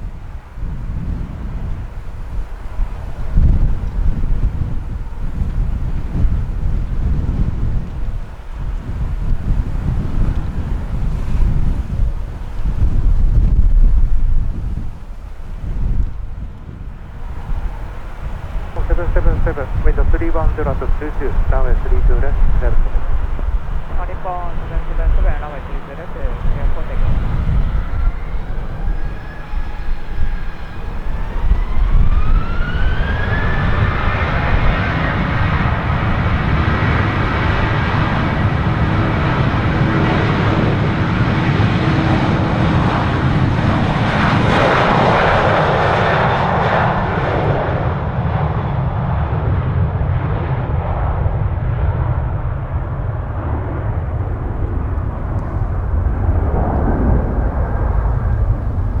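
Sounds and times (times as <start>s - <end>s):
jet engines spooling up: 17.2s - 41.1s.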